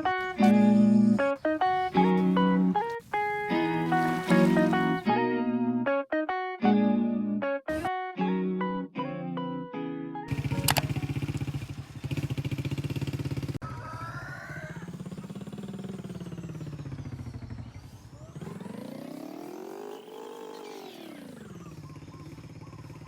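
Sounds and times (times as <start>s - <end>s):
vehicle engine running: 0.0s - 5.1s, 10.3s - 13.6s, 14.4s - 23.0s.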